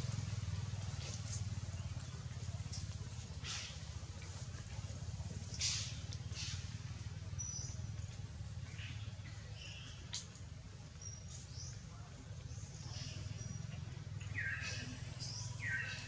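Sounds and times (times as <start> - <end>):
hissy rustles: 0.6 - 7.1
bird chirps: 12.7 - 16.0.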